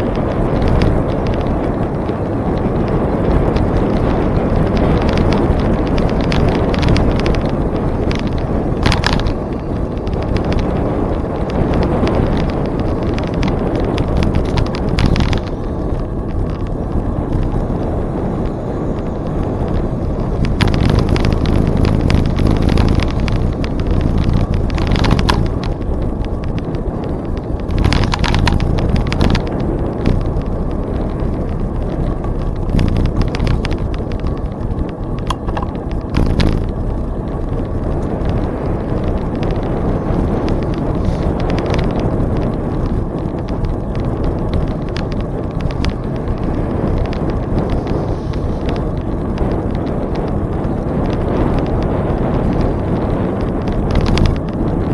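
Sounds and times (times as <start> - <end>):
bicycle clicking and rattling: 0.0 - 54.9
wind rumbling on microphone: 0.0 - 54.9.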